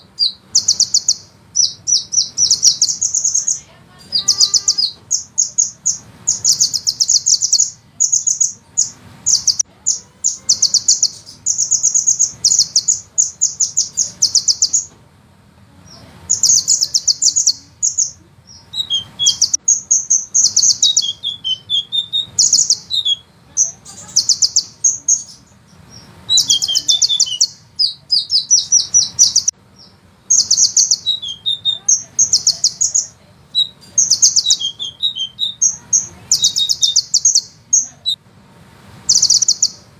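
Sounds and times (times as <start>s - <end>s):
bird singing high rolling trill: 0.0s - 14.9s, 15.8s - 38.2s, 39.0s - 39.9s.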